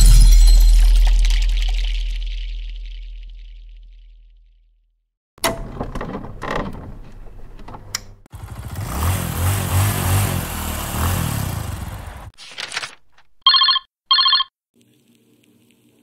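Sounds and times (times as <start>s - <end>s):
glass shattering: 0.0s - 2.2s
motorcycle engine revving: 8.3s - 12.4s.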